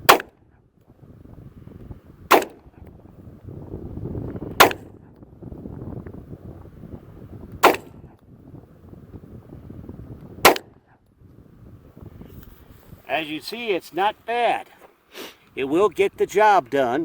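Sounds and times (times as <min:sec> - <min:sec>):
pistol shots: 0:00.0 - 0:00.4, 0:02.3 - 0:02.7, 0:04.6 - 0:05.1, 0:07.6 - 0:08.1, 0:10.4 - 0:10.8.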